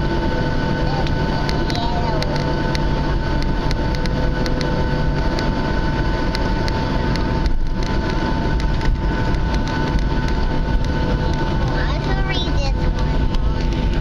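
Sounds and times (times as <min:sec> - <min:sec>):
engine whining tones: 0:00.0 - 0:14.0
jet engine rumble in cabin: 0:00.0 - 0:14.0.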